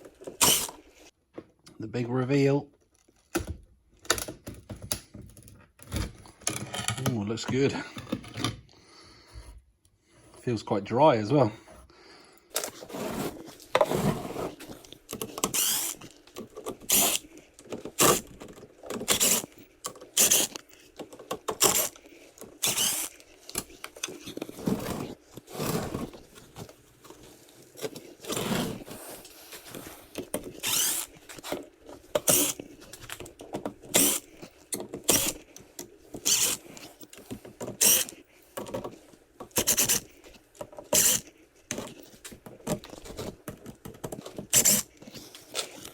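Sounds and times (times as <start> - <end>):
scraping and rubbing: 12.6 - 35.6.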